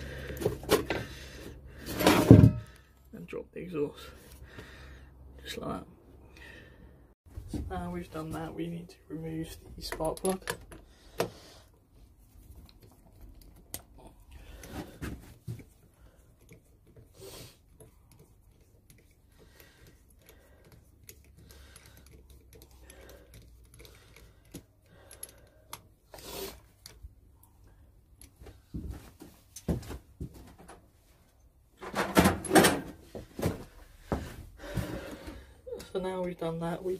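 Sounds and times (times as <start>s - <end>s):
hand tools clicking on metal: 17.7s - 25.9s.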